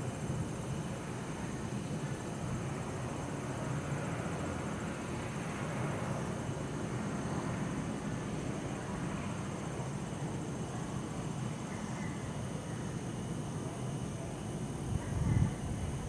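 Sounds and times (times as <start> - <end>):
road traffic hum: 0.0 - 12.3.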